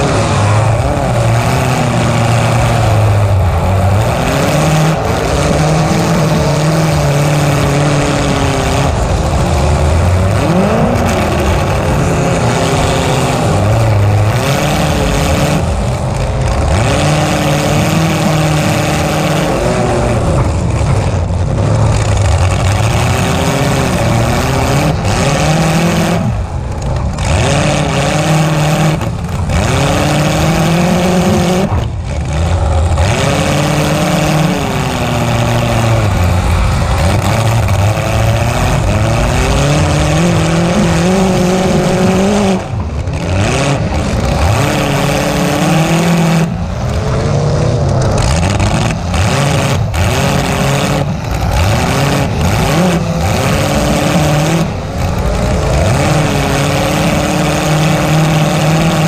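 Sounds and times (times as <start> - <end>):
unmuffled car engine revving: 0.0 - 59.0.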